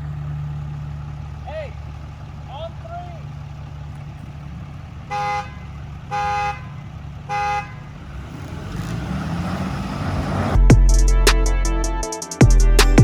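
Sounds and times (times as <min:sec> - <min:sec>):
engine idling: 0:00.0 - 0:13.0
truck horn toots: 0:05.0 - 0:09.0
music: 0:10.6 - 0:13.0.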